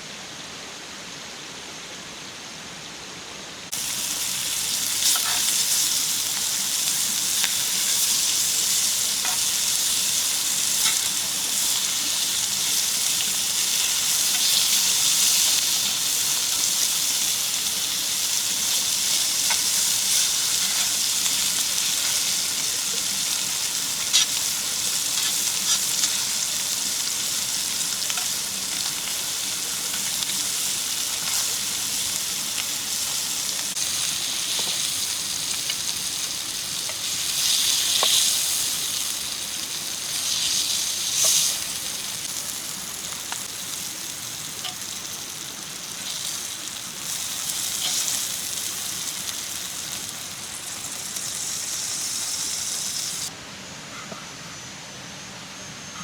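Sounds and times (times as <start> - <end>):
food sizzling in a pan: 3.7 - 53.3.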